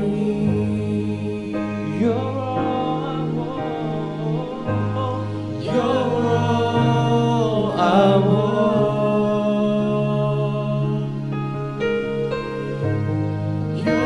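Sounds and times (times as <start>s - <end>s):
person singing: 0.0s - 12.9s, 13.7s - 14.0s
sustained keyboard chords: 0.0s - 14.0s.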